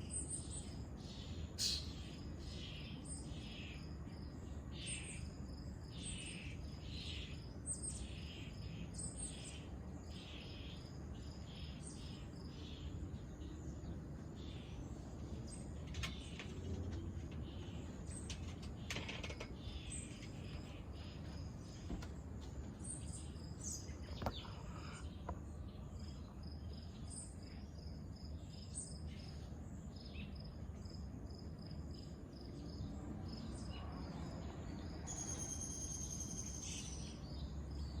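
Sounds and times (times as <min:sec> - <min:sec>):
bird calls: 0:00.0 - 0:03.9, 0:15.5 - 0:27.7
insect chirping: 0:00.0 - 0:15.3, 0:22.9 - 0:38.0.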